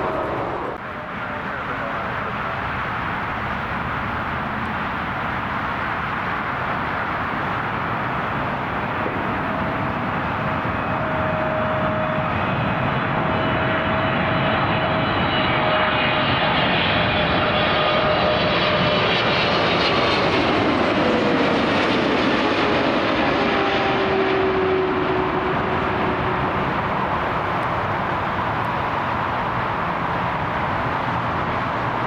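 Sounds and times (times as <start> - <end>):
airliner flying past: 0.0 - 32.0.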